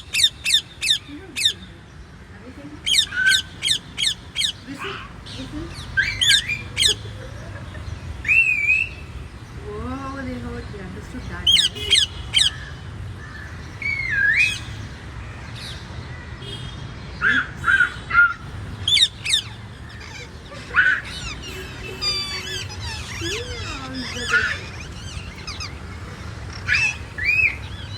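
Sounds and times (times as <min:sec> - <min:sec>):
parrot squawking and whistling: 0:06.0 - 0:07.0, 0:18.8 - 0:27.9.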